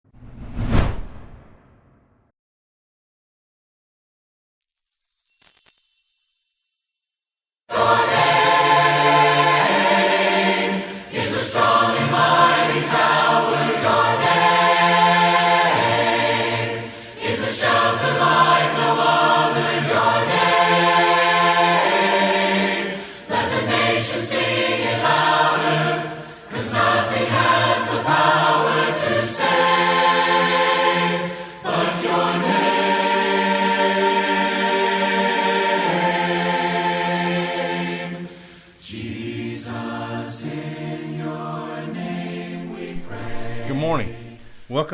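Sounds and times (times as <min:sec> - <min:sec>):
choir singing a cappella: 0:07.7 - 0:44.6
singers breathing: 0:10.8 - 0:11.2, 0:16.8 - 0:17.2, 0:22.9 - 0:23.4, 0:26.1 - 0:26.5, 0:31.3 - 0:31.6, 0:38.2 - 0:38.8.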